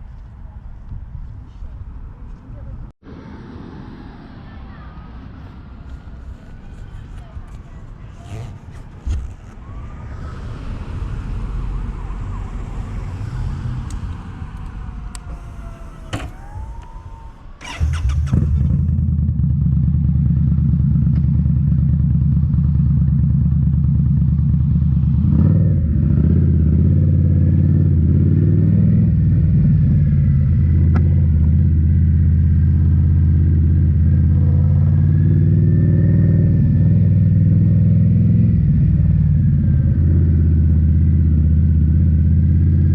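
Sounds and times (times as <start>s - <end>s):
motorcycle engine starting and idling: 13.9s - 42.9s.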